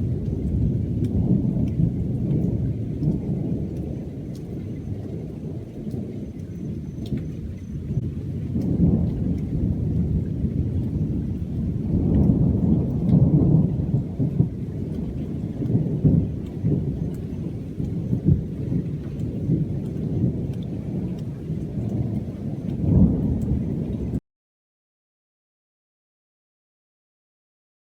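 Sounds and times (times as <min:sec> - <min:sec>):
faint rain ticks: 0:00.0 - 0:24.2
thunder rumbling: 0:00.0 - 0:24.2.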